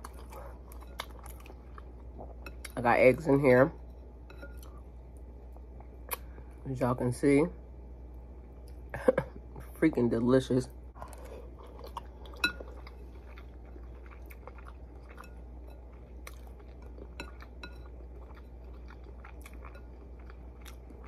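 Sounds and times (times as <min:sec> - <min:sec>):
person chewing noodles: 0:00.0 - 0:02.7, 0:11.0 - 0:21.0
steady low hum: 0:00.0 - 0:21.0.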